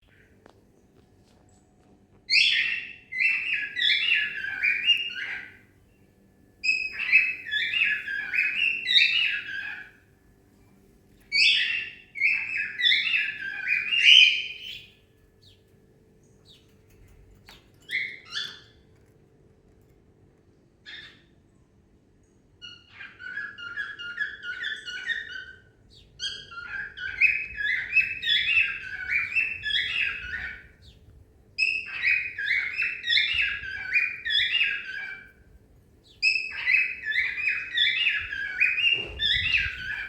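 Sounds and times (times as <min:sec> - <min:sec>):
cockatiel warbling: 0:02.4 - 0:05.6, 0:31.6 - 0:35.3, 0:36.2 - 0:40.0.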